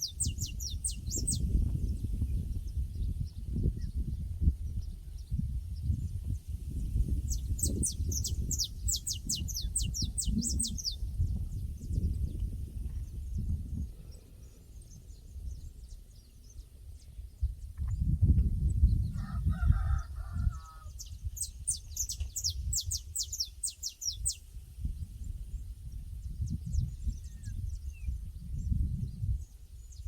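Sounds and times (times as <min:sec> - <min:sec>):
small bird chirping: 0:00.0 - 0:04.1, 0:04.8 - 0:19.0, 0:21.0 - 0:24.5
wind rumble on microphone: 0:00.0 - 0:30.0
distant rooster crowing: 0:19.1 - 0:21.0.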